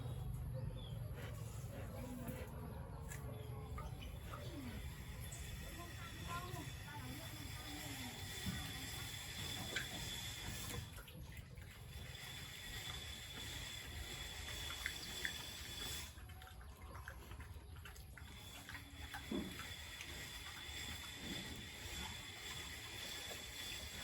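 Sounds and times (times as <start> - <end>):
faint splashing water: 0.8 - 24.0.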